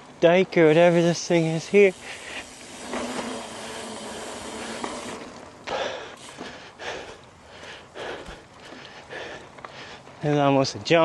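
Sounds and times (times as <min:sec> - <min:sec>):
bike tyres on dirt: 0:00.0 - 0:11.0.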